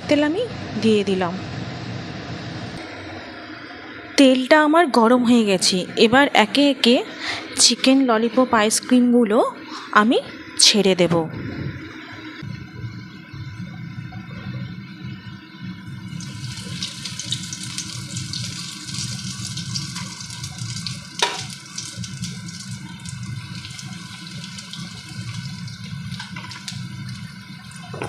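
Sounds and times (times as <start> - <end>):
chicken sizzling in hot oil: 15.9 - 28.0.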